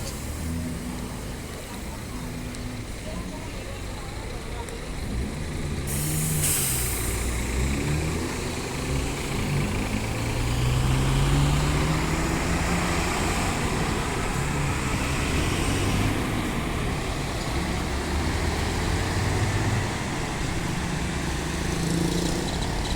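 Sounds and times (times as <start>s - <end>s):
diesel coach engine running: 0.0s - 22.9s
road and tyre noise: 0.0s - 22.9s
short hiss: 5.9s - 7.4s.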